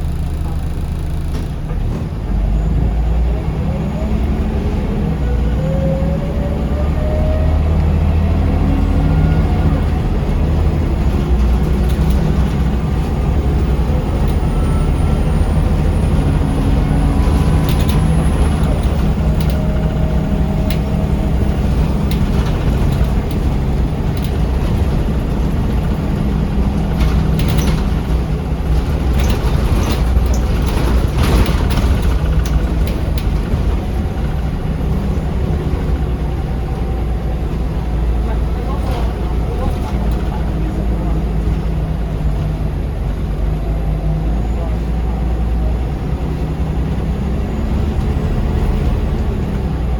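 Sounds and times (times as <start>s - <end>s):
bus engine rumble: 0.0s - 49.9s
body rattles and clicks: 9.9s - 36.1s.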